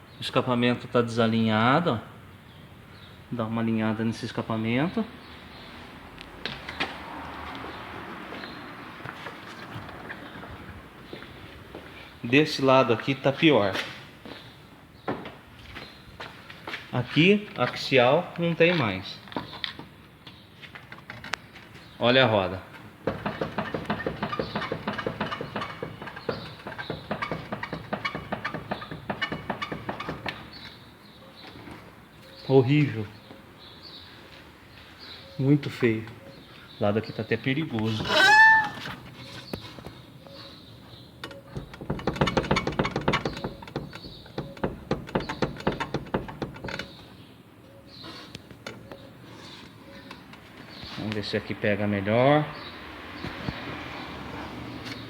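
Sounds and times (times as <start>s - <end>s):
wheel suspension clunking: 22.8s - 30.8s, 41.2s - 47.1s.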